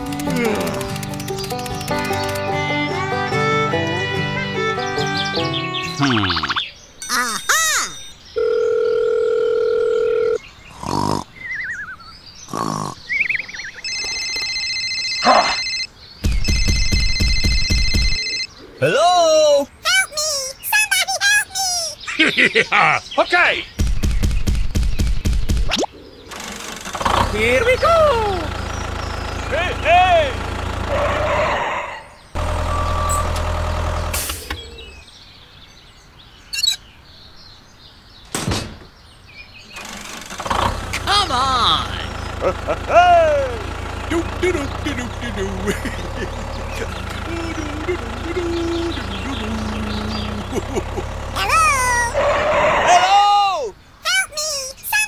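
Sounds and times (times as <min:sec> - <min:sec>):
tractor engine droning: 0:00.0 - 0:05.8, 0:26.3 - 0:31.8, 0:32.4 - 0:35.0, 0:39.8 - 0:52.8
electronic phone ringtone: 0:07.0 - 0:10.4, 0:13.8 - 0:18.5
phone dial tone: 0:08.0 - 0:10.4, 0:13.8 - 0:15.9, 0:16.5 - 0:18.5
faint bird chirps: 0:10.3 - 0:14.0, 0:34.4 - 0:37.6
cartoon snoring: 0:10.7 - 0:11.4, 0:12.5 - 0:13.1, 0:45.0 - 0:51.0.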